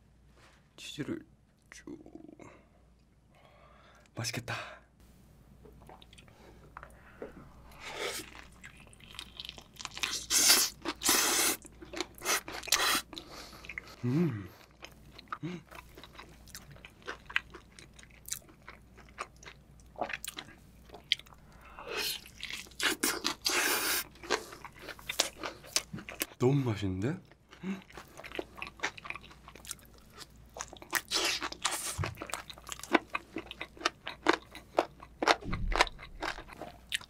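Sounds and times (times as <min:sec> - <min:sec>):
wet chewing: 0:27.5 - 0:37.0
crunchy bites: 0:33.7 - 0:37.0.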